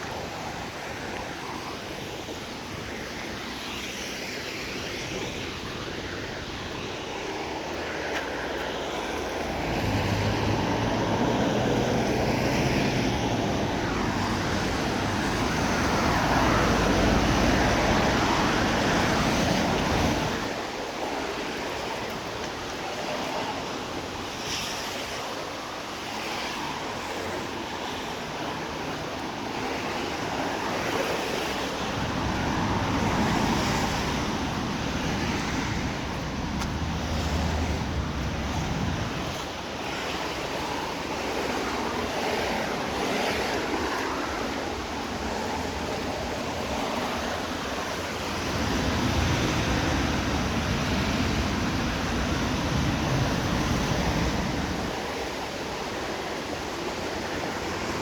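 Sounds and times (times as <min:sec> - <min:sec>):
tyres hissing on wet road: 0:00.0 - 0:58.0
cars passing rumble: 0:04.9 - 0:20.6, 0:26.6 - 0:55.8.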